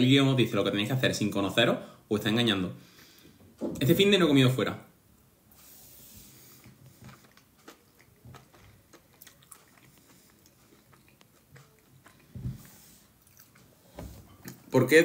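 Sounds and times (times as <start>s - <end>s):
person chewing soft food: 6.2s - 14.7s.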